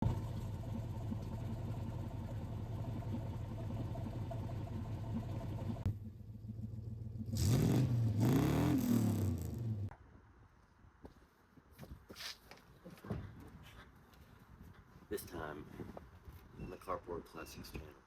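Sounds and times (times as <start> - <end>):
engine exhaust idling: 0.0 - 8.2
engine revving: 0.0 - 9.9.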